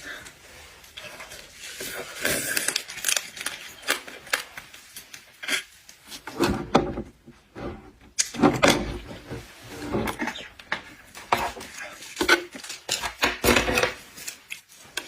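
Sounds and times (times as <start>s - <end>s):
shells cracking and crunching: 2.4s - 4.7s.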